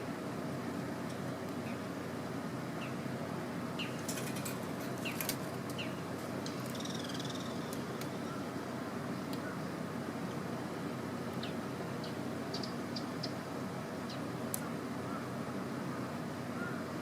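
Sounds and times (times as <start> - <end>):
small birds chirping: 3.8 - 4.2, 4.9 - 8.5, 11.4 - 13.4.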